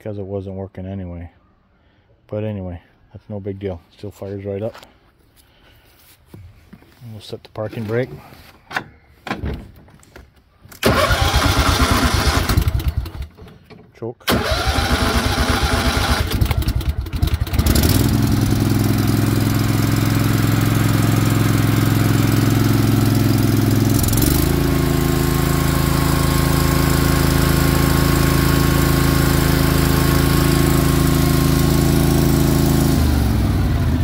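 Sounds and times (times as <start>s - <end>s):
engine starter cranking: 10.7s - 18.0s
tractor engine running: 10.8s - 34.0s.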